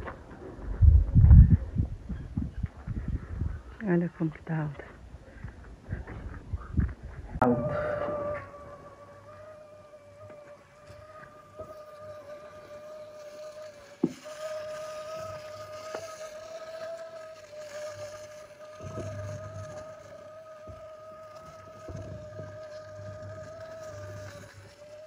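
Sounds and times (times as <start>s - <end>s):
wind gusts on microphone: 0.0s - 9.0s
small motor running: 7.4s - 25.0s.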